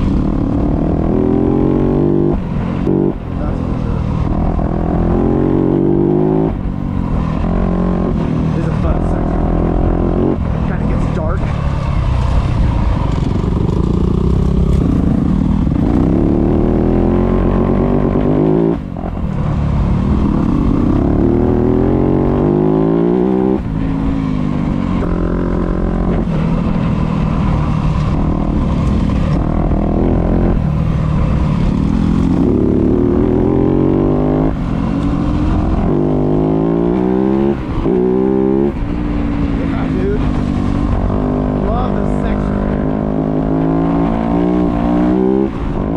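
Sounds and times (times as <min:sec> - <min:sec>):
dirt bike engine revving: 0:12.1 - 0:19.1, 0:19.9 - 0:45.9.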